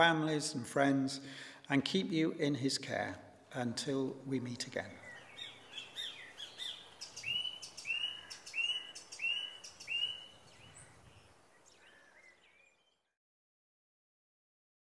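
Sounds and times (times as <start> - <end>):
high bird chirps: 5.1 - 13.0.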